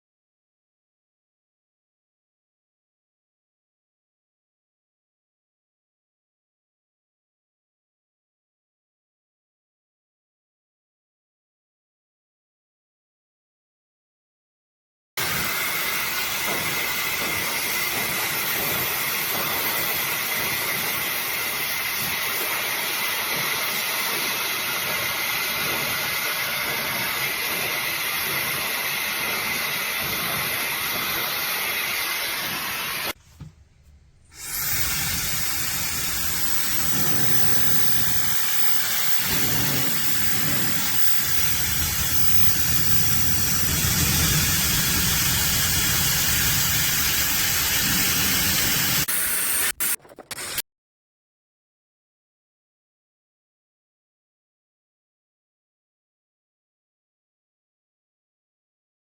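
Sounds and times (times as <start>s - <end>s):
hair dryer blowing: 15.2s - 33.5s, 34.3s - 49.7s.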